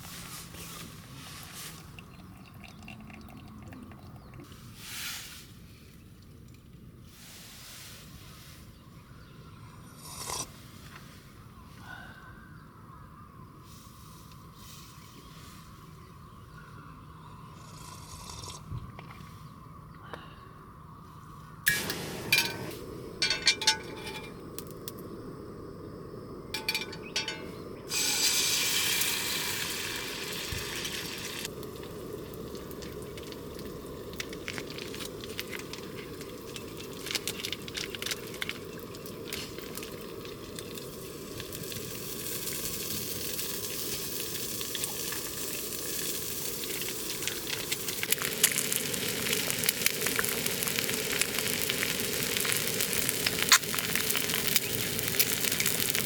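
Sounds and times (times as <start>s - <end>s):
utensils clinking: 21.7s - 24.4s, 26.6s - 27.6s
food sizzling in a hot pan: 27.9s - 35.5s, 39.0s - 56.0s.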